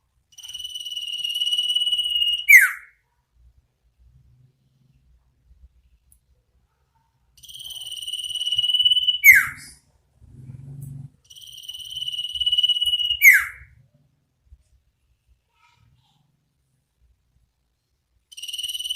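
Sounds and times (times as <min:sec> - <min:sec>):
bird whistling: 0:01.0 - 0:02.9, 0:08.0 - 0:09.8, 0:11.8 - 0:13.7
faint low buzz: 0:09.8 - 0:11.3.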